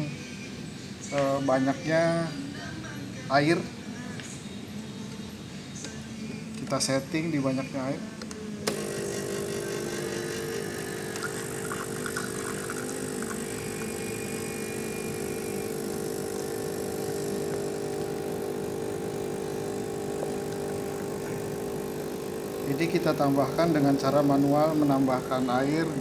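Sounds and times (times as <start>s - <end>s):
espresso machine pump humming: 8.7s - 26.0s
water dispensing into cup: 8.7s - 26.0s.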